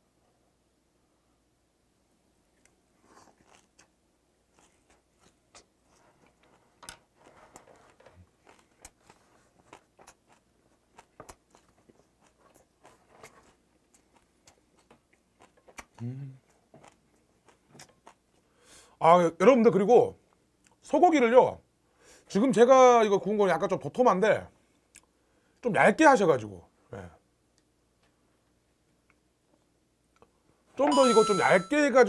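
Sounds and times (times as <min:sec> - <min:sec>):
quiet chewing: 0:02.5 - 0:18.9, 0:24.6 - 0:25.2.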